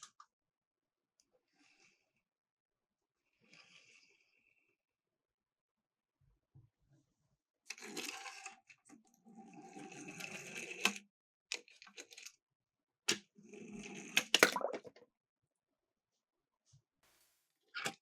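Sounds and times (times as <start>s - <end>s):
toy cars rolling down a slope: 7.7s - 11.1s.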